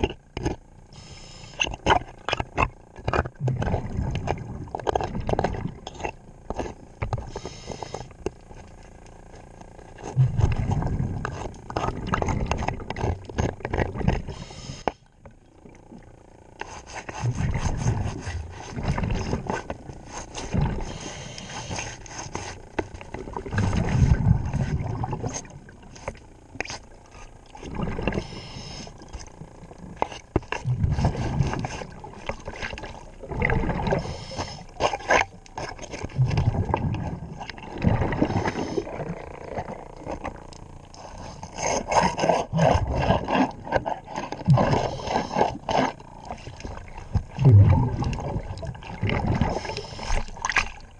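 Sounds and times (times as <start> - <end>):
exhaled bubbles rumbling: 0.0 - 50.9
scraping clicks underwater: 0.0 - 50.9
diver breathing through regulator: 0.9 - 1.8, 6.6 - 8.2, 14.0 - 15.1, 16.6 - 22.8, 27.8 - 29.1, 33.5 - 35.0, 37.9 - 39.8, 40.9 - 46.6, 49.1 - 50.4.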